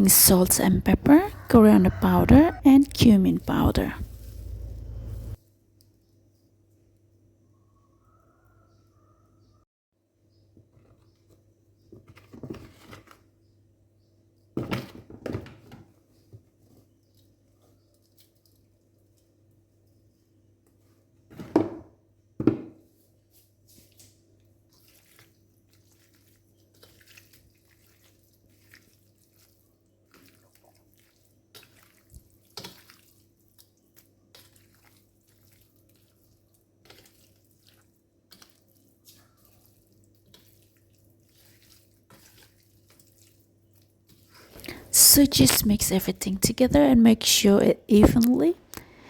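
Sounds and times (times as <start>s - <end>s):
faint steady hum: 0.0s - 5.4s.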